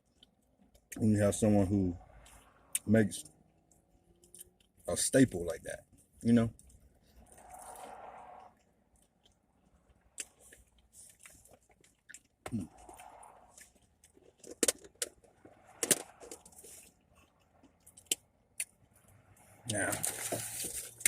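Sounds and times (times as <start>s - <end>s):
person chewing food: 0.0s - 1.0s, 3.4s - 4.8s, 6.6s - 19.1s.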